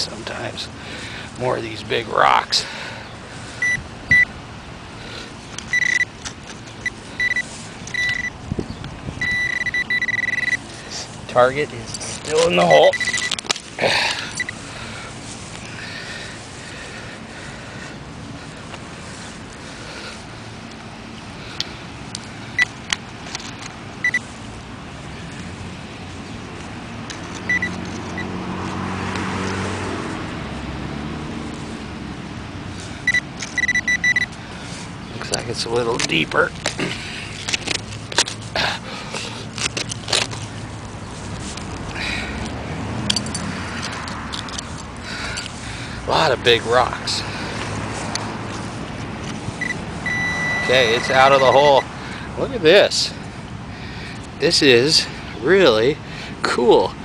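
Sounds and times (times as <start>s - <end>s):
car passing: 0.0s - 57.0s
metal detector beeping: 3.6s - 4.3s, 5.7s - 6.2s, 6.8s - 8.4s, 9.2s - 10.6s, 12.3s - 13.4s, 14.4s - 14.6s, 24.0s - 24.2s, 27.4s - 28.3s, 33.0s - 34.4s, 49.6s - 51.9s
digging in rocky soil: 10.7s - 15.8s, 34.2s - 49.7s, 50.6s - 51.8s.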